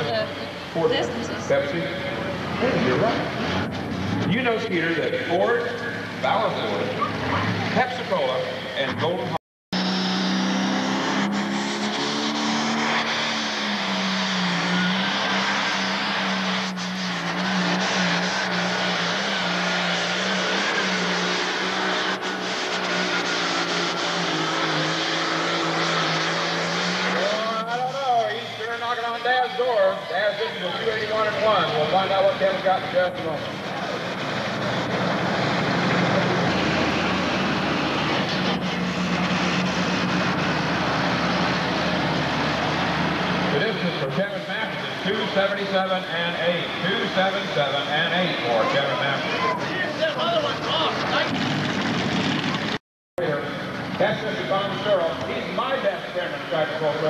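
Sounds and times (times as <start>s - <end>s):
diesel engine at full throttle: 0.0s - 57.0s
thin turbo whine: 9.8s - 52.1s, 53.2s - 57.0s
diesel tractor engine running: 30.6s - 44.1s.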